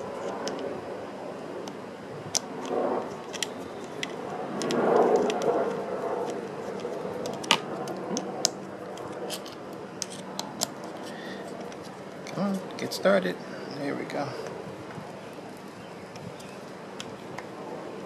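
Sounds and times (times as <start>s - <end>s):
screwdriver clicking and scraping: 2.3s - 5.5s, 6.2s - 8.2s, 8.9s - 12.4s.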